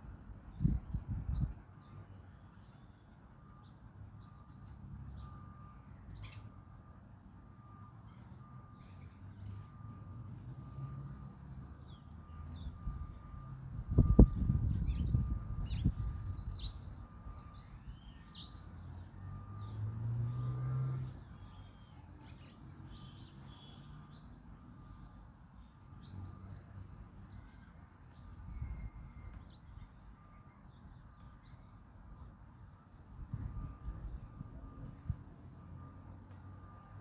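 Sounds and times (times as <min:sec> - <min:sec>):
low engine-like sound: 0:00.0 - 0:37.0
faint pulsing beep: 0:00.1 - 0:37.0
small birds chirping: 0:14.0 - 0:28.6.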